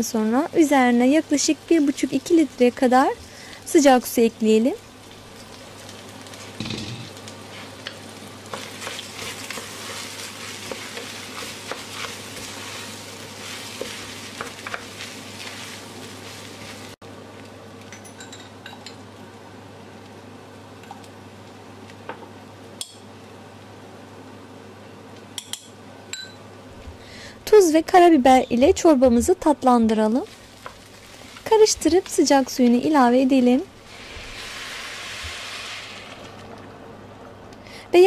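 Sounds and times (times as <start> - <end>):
food sizzling in a pot: 0.0 - 17.5, 27.6 - 36.6.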